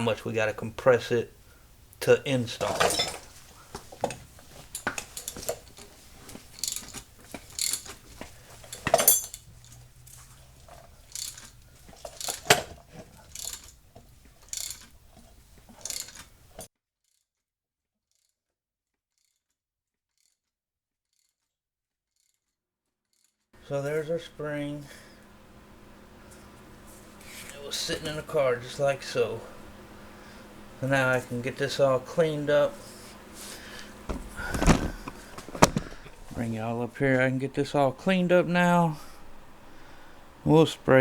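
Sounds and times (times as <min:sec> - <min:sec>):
metallic clicks and clanks of tools: 0:02.6 - 0:16.7.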